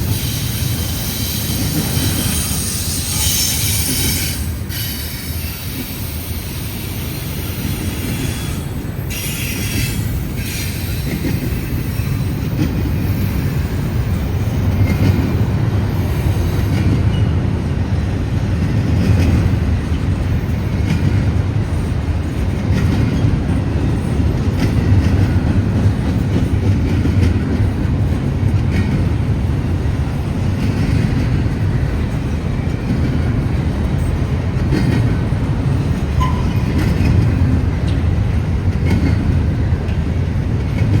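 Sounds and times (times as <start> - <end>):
high wheel squeal: 0.0 - 13.6
freight train rumbling past: 0.0 - 41.0.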